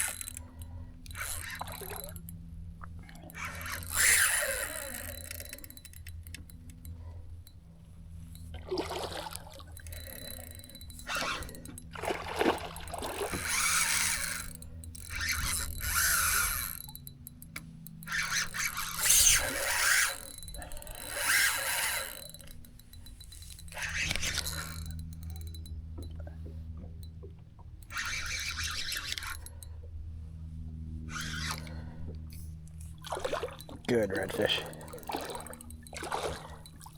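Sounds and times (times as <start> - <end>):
fishing reel whirring: 0.0 - 36.9
steady low hum: 0.0 - 36.9.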